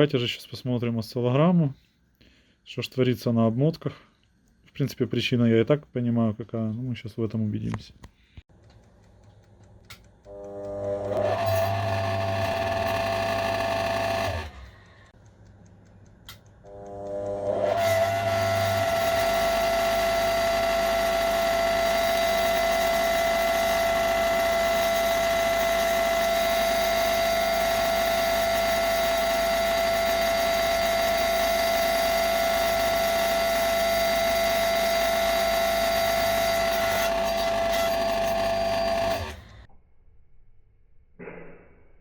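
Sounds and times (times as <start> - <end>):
electric motor humming: 10.3 - 15.1, 16.7 - 39.7.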